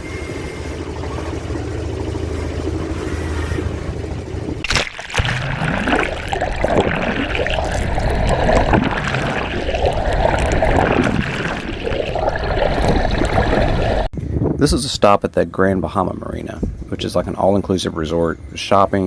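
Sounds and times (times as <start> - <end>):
seawater rushing and gurgling: 0.0 - 14.1.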